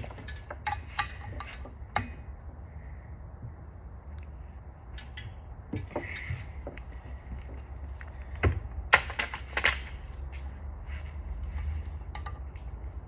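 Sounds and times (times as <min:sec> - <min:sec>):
low steady hum: 0:00.0 - 0:13.0
hand tools clinking on metal: 0:12.1 - 0:12.7.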